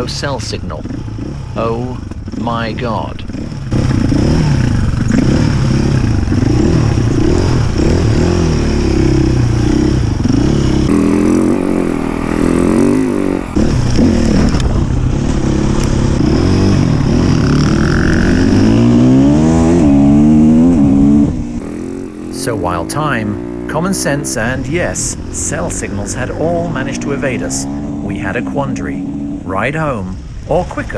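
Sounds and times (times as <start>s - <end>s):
dirt bike engine revving: 0.0s - 30.9s.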